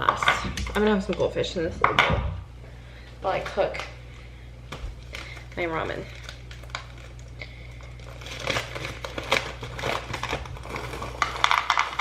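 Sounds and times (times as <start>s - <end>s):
low steady hum: 0.0s - 12.0s
snack bag crinkling: 4.7s - 12.0s
crackers rattling into bowl: 5.0s - 12.0s.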